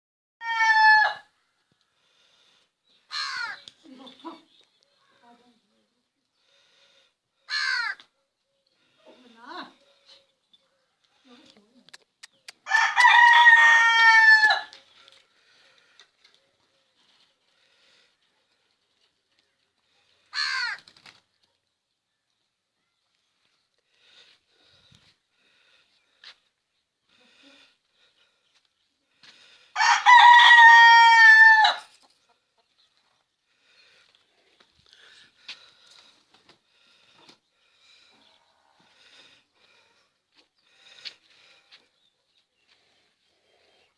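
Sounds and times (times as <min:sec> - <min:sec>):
rooster crowing: 0:00.4 - 0:01.3, 0:12.6 - 0:14.8, 0:29.7 - 0:31.9.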